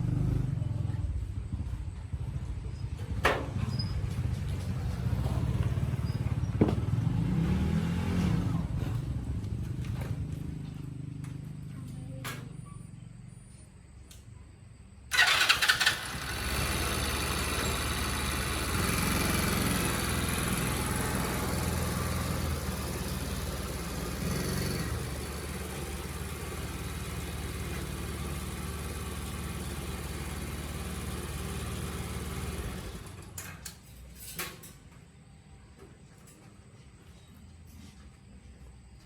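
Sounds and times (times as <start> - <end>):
motorcycle engine running: 0.0 - 12.2, 15.1 - 33.4.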